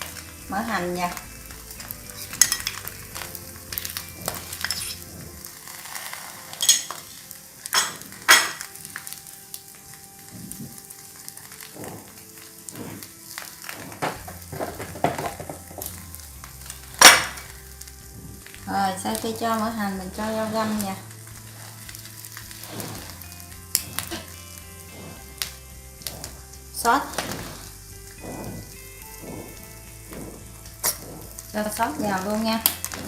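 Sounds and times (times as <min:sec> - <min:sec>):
food sizzling in a pan: 0:00.0 - 0:33.0.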